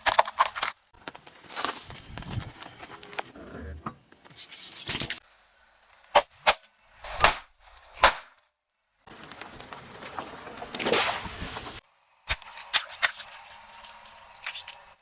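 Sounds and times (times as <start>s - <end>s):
objects bursting under car tyre: 9.1s - 11.8s
hiss: 10.8s - 11.8s.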